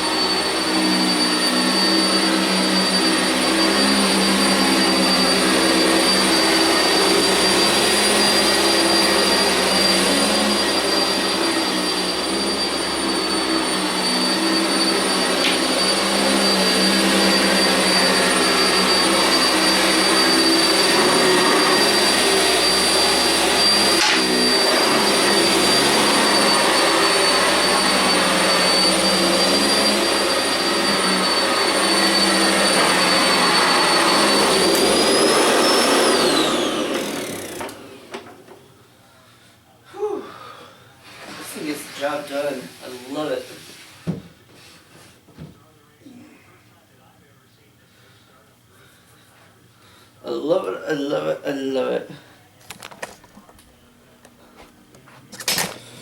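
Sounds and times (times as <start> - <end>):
upright vacuum running on carpet: 0.0 - 38.6, 41.0 - 44.7.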